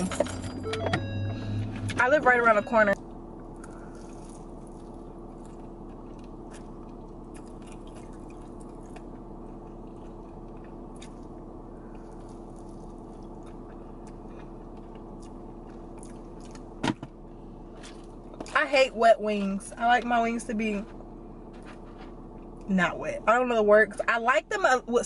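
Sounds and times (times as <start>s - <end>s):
low car interior hum: 0.0s - 25.0s
mouth chewing and smacking: 3.6s - 16.8s.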